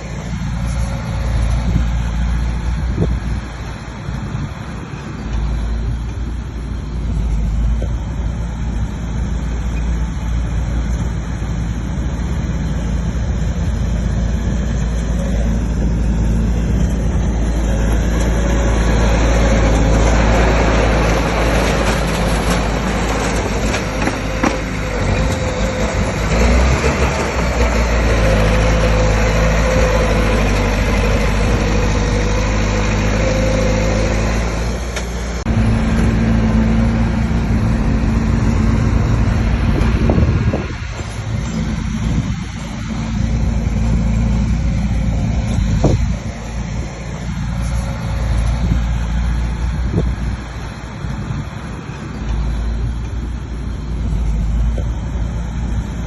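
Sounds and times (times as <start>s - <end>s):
bulldozer diesel engine rumbling: 0.0s - 56.0s.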